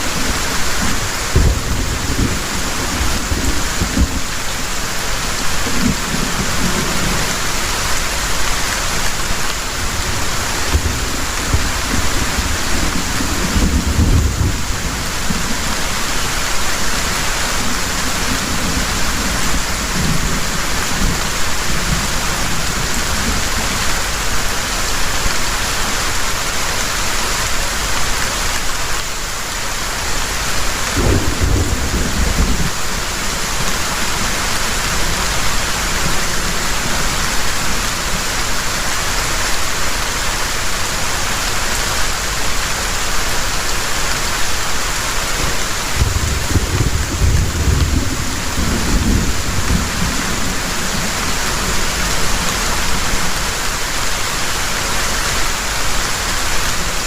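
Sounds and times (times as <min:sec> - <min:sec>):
thunder rumbling: 0:00.0 - 0:23.8, 0:31.0 - 0:38.2, 0:45.4 - 0:53.6
heavy rain falling: 0:00.0 - 0:57.0.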